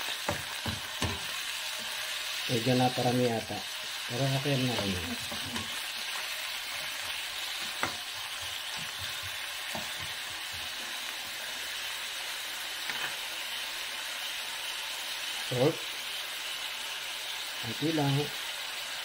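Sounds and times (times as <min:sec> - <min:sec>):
potato strips sizzling in oil: 0:00.0 - 0:19.0.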